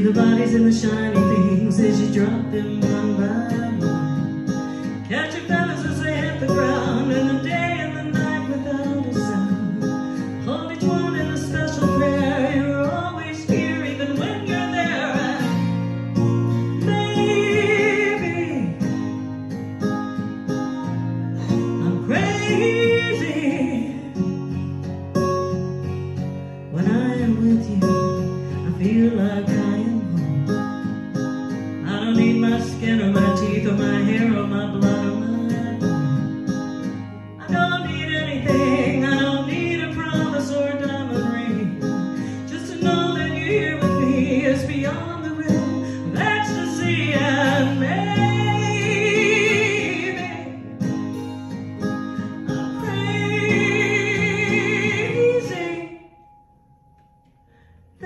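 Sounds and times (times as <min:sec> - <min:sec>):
person singing: 0:00.0 - 0:15.8, 0:16.6 - 0:18.8, 0:21.4 - 0:24.2, 0:26.7 - 0:30.6, 0:31.8 - 0:36.3, 0:37.4 - 0:50.6, 0:52.8 - 0:56.2
acoustic guitar: 0:00.0 - 0:58.0.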